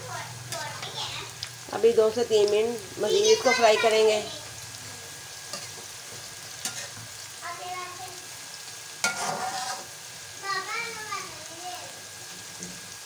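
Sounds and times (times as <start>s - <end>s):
vegetables sizzling in a wok: 0.0s - 13.0s
metal spatula scraping wok: 5.5s - 5.8s, 6.6s - 7.0s, 9.0s - 10.0s.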